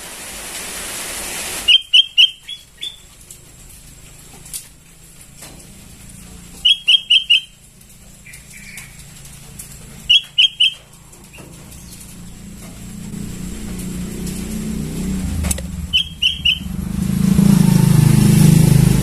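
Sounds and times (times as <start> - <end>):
bird chirping: 1.7 - 3.2, 6.5 - 7.6, 8.2 - 9.2, 10.0 - 12.6, 15.8 - 16.9
low rumble: 11.2 - 19.0.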